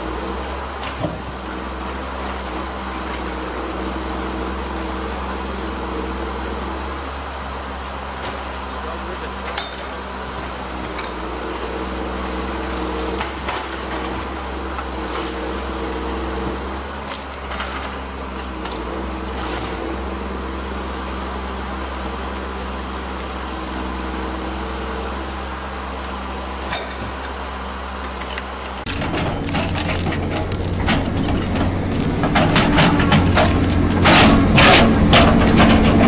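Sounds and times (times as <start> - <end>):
heavy machine engine running: 0.0 - 36.0
wood cracking: 28.9 - 36.0.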